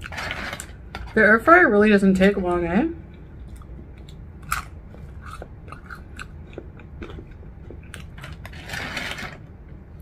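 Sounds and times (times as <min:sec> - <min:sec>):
chewing crispy fries: 0:03.4 - 0:09.4.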